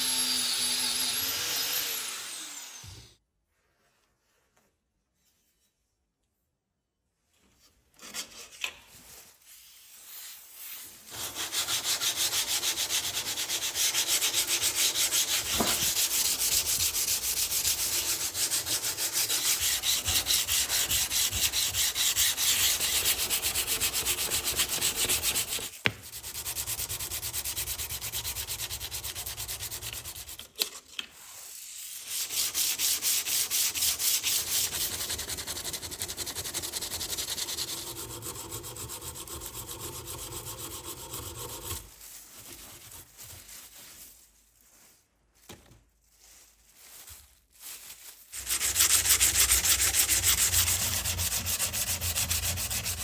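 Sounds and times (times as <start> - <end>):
sandpaper rubbing steel blade: 9.6 - 30.6, 31.4 - 43.0, 48.3 - 53.0.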